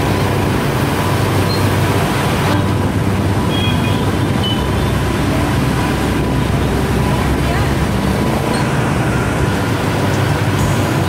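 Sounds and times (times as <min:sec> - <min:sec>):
vehicle rumble: 0:00.0 - 0:11.0.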